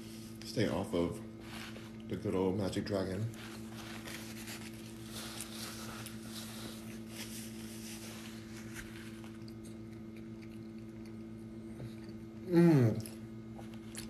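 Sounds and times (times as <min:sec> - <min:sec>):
steady low hum: 0:00.0 - 0:14.0
chewing and mouth sounds: 0:08.8 - 0:14.0.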